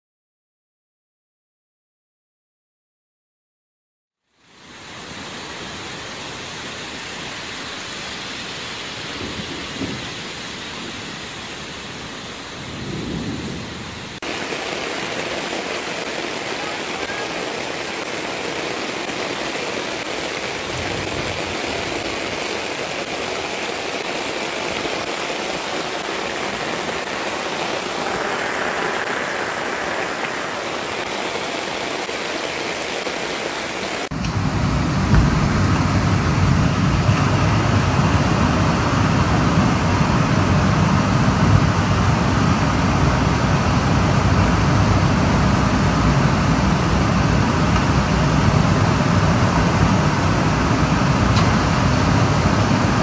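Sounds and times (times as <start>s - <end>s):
heavy rain: 4.2s - 53.0s
low rumbles: 34.1s - 53.0s.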